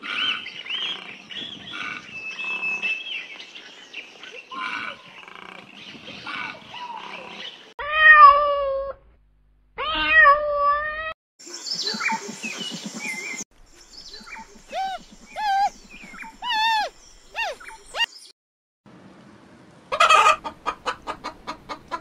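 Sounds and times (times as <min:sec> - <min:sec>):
cat meowing: 0:07.8 - 0:09.0, 0:09.8 - 0:11.2, 0:14.7 - 0:15.7
panda high calls: 0:14.7 - 0:15.7, 0:16.4 - 0:18.1.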